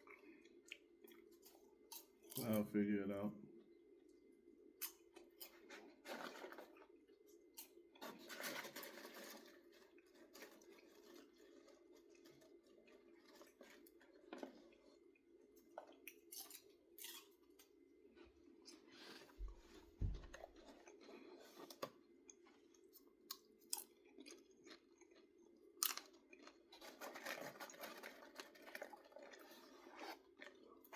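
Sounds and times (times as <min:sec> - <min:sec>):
chewing popcorn: 0:00.0 - 0:02.7, 0:04.0 - 0:30.9.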